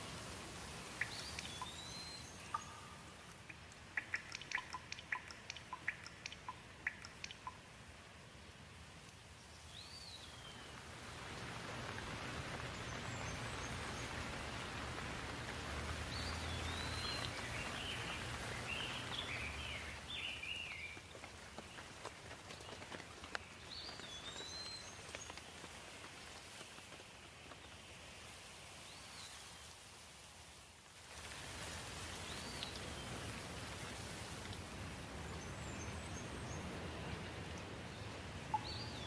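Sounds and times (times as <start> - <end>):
rushing water: 0.0 - 39.0
songbird chirping: 0.8 - 7.7, 9.4 - 25.6, 34.8 - 39.0.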